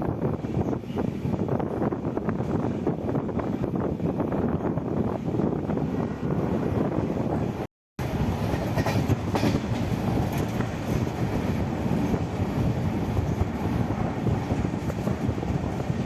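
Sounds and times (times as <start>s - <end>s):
train wheels rumbling on rails: 0.0s - 16.0s
clacks over rail joints: 8.4s - 11.3s.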